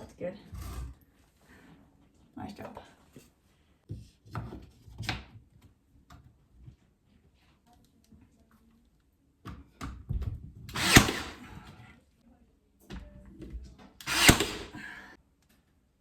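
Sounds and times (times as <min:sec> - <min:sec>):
nail gun firing into wood: 0:10.7 - 0:11.6, 0:14.0 - 0:14.8.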